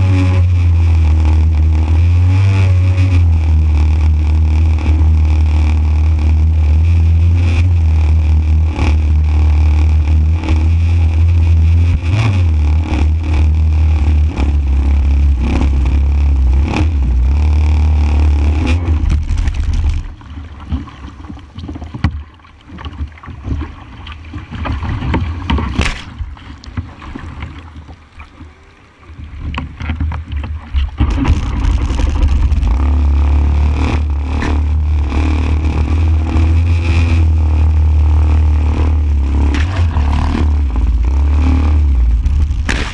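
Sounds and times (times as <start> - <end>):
two-stroke engine running: 0.0 - 20.2, 31.0 - 42.9
rushing wind and water: 0.0 - 42.9.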